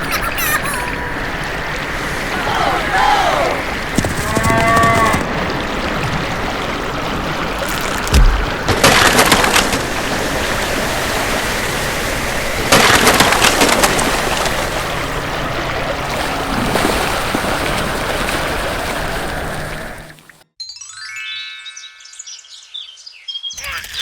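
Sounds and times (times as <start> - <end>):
steady rushing noise: 1.0 - 4.4
crackling bursts: 1.6 - 10.4.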